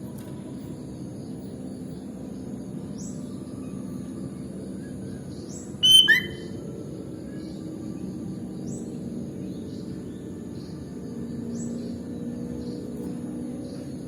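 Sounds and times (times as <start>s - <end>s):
bird whistling clear notes: 5.8s - 6.6s
faint high rising chirps: 5.8s - 6.6s.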